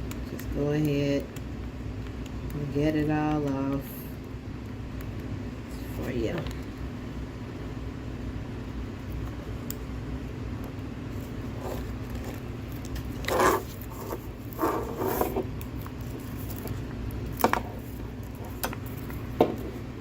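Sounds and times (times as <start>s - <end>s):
steady low hum: 0.0s - 20.0s
plastic film peeling: 11.8s - 19.3s.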